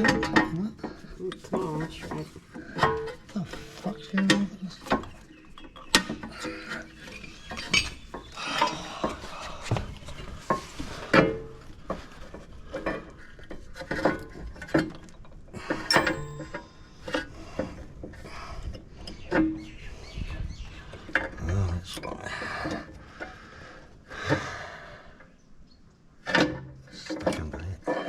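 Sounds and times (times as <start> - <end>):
metallic clinks and scraping: 12.7 - 17.8.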